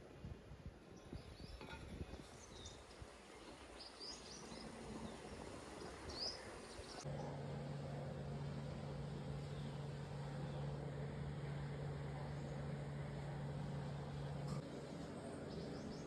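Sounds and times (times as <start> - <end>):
steady low hum: 4.5 - 16.0.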